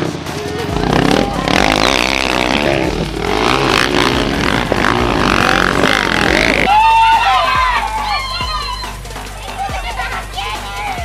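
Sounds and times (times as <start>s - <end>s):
motorcycle engines revving past: 0.6s - 6.8s.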